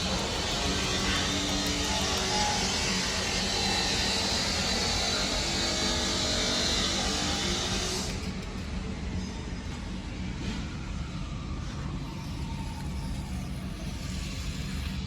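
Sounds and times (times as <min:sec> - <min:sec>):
toy vehicle electric motors running: 0:00.0 - 0:08.7, 0:12.0 - 0:15.0.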